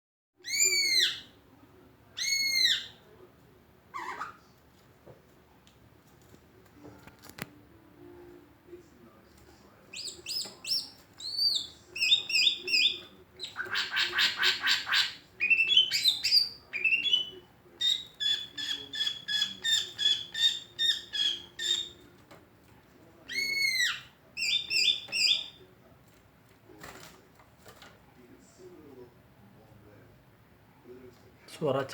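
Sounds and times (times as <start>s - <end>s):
bird harsh chattering: 9.9s - 22.0s.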